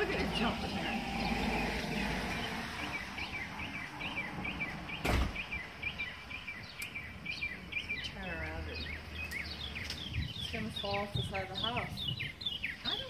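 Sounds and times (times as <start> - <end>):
small bird chirping: 0.0 - 13.0
brief thump: 5.0 - 5.4.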